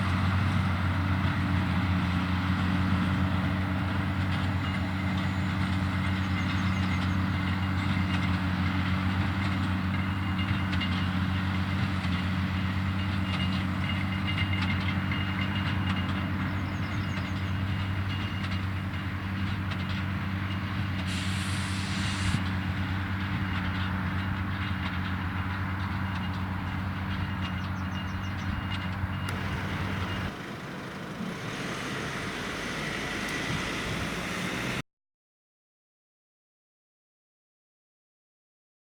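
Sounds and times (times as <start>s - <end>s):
tractor engine running: 0.0s - 34.8s
high hiss: 21.1s - 22.4s.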